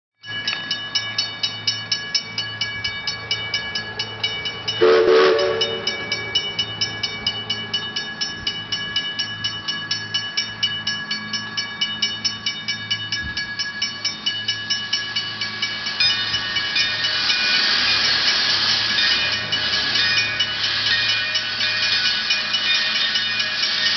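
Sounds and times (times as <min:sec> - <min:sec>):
steady high ringing: 0:00.2 - 0:23.9
steam train clicking rhythm: 0:00.2 - 0:23.9
train whistle blast: 0:04.8 - 0:05.9
steam hiss: 0:15.0 - 0:23.9.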